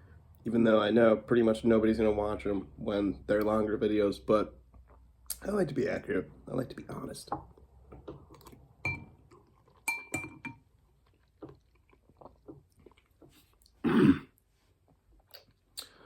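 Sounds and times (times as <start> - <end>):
quiet eating sounds: 7.5 - 16.0
spoon clinking against bowl: 9.9 - 10.6.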